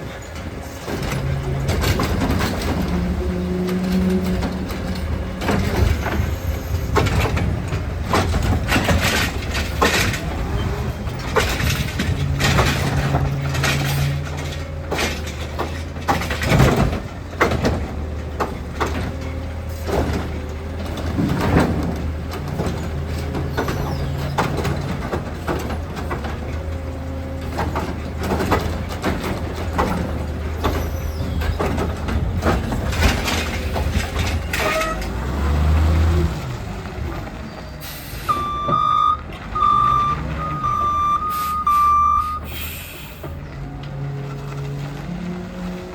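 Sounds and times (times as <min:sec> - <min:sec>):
knocks and clatter: 0:00.0 - 0:37.7
garbage truck engine humming: 0:00.0 - 0:45.9
reversing alarm beeps: 0:38.3 - 0:42.6.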